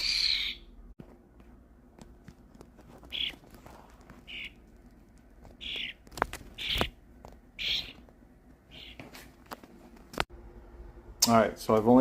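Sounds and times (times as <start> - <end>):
young bird rasping calls: 5.6 - 6.0, 6.6 - 6.9, 7.6 - 8.0.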